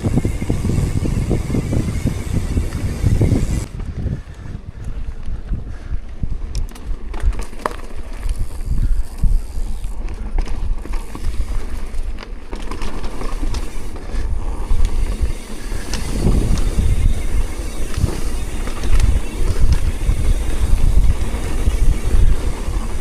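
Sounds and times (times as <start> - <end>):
wind buffeting microphone: 0.0 - 12.2, 13.4 - 23.0.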